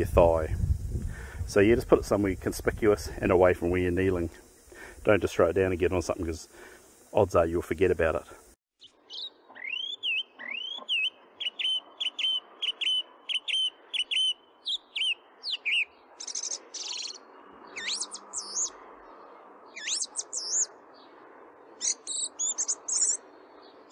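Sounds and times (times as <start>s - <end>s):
songbird whistling and trilling: 9.1s - 18.7s, 19.7s - 20.7s, 21.8s - 23.2s.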